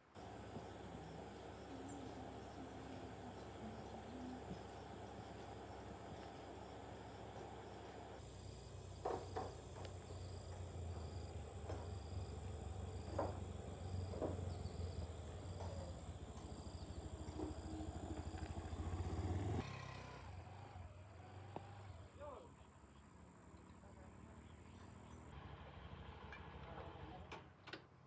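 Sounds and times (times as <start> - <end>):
motor humming: 0.2 - 22.0
insect chirping: 0.2 - 25.3.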